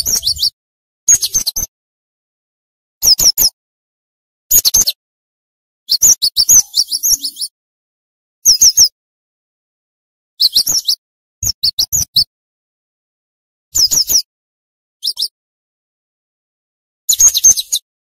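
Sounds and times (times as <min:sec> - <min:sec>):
bird singing high notes: 0:00.0 - 0:00.6, 0:06.4 - 0:07.5.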